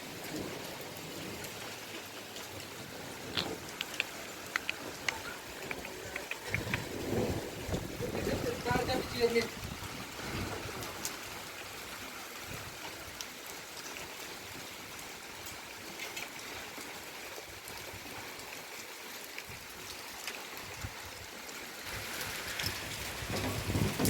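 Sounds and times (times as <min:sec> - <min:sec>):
steady rain hiss: 0:00.0 - 0:24.0
raindrop ticks: 0:00.2 - 0:09.9, 0:21.9 - 0:24.0.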